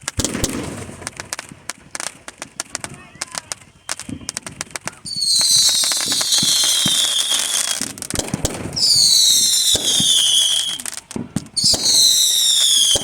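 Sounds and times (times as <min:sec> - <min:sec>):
fireworks crackling pops: 0:00.0 - 0:13.0
firework whistle sliding down: 0:05.1 - 0:07.9, 0:08.8 - 0:11.0, 0:11.6 - 0:13.0.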